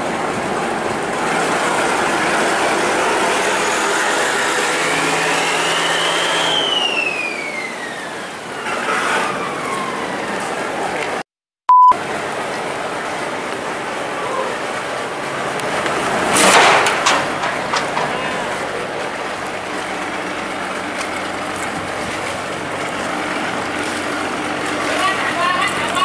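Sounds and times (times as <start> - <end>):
engine running: 0.0 - 11.2, 12.0 - 26.0
loud high beep: 11.7 - 12.0.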